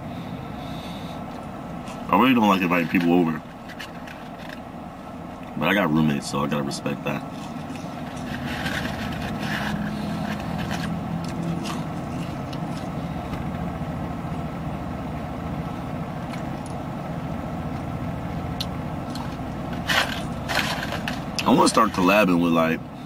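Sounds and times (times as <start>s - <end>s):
car idling hum: 0.0s - 23.0s
brief rustle: 7.3s - 12.9s.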